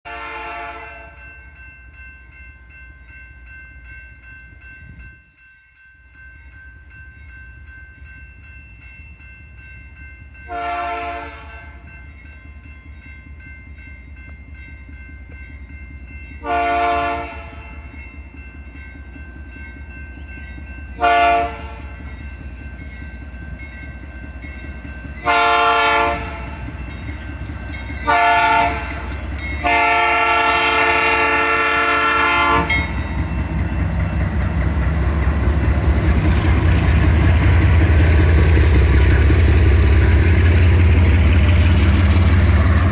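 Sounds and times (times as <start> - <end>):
locomotive air horn blasts: 0.0 - 1.2, 10.5 - 11.8, 16.4 - 17.7, 21.0 - 21.8, 25.2 - 26.6, 28.0 - 32.8
diesel engine rumbling: 32.7 - 42.9.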